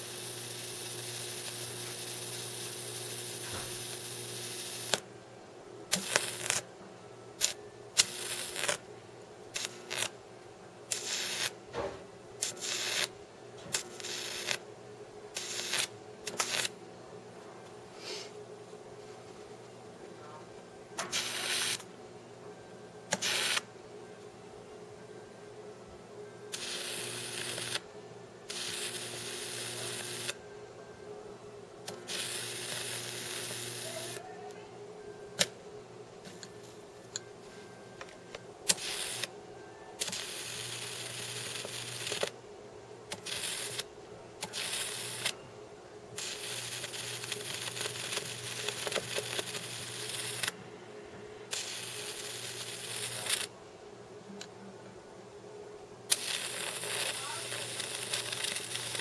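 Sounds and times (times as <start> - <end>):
high-voltage arc buzzing: 0.0 - 5.1, 5.9 - 6.7, 7.4 - 8.9, 9.5 - 10.2, 10.9 - 11.7, 12.4 - 14.7, 15.3 - 16.8, 21.0 - 21.9, 23.1 - 23.7, 26.5 - 30.4, 31.8 - 34.2, 38.7 - 39.3, 40.0 - 42.3, 43.1 - 45.4, 46.2 - 50.6, 51.5 - 53.5, 56.1 - 59.0
sharp electrical snaps: 0.0 - 5.1, 5.9 - 6.7, 7.4 - 8.8, 9.5 - 10.2, 10.9 - 11.6, 12.4 - 14.6, 15.3 - 16.8, 21.0 - 21.9, 23.1 - 23.7, 26.5 - 27.8, 28.5 - 30.4, 31.8 - 34.2, 38.7 - 39.3, 40.0 - 42.4, 43.1 - 45.4, 46.2 - 50.6, 51.5 - 53.5, 56.1 - 59.0
steady electrical hum: 0.0 - 59.0.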